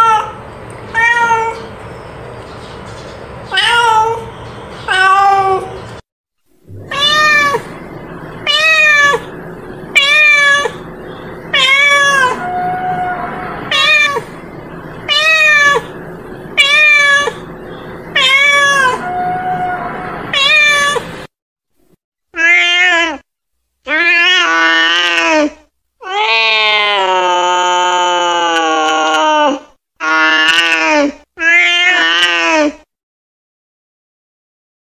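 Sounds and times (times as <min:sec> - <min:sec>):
cat meowing: 0:01.0 - 0:01.7, 0:06.7 - 0:07.8, 0:08.4 - 0:10.9, 0:11.5 - 0:16.0, 0:16.6 - 0:17.5, 0:18.1 - 0:21.2, 0:22.4 - 0:23.2, 0:26.0 - 0:27.5, 0:30.0 - 0:32.6.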